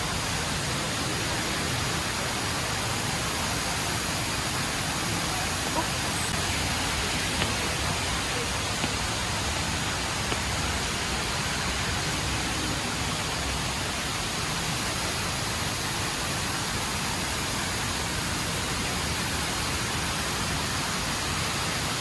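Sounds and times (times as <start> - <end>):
rush of falling water: 0.0 - 22.0.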